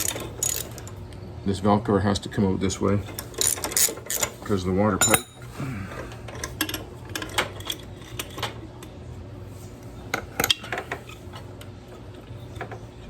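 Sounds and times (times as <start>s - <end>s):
metallic clinks of hand tools: 5.0s - 5.5s.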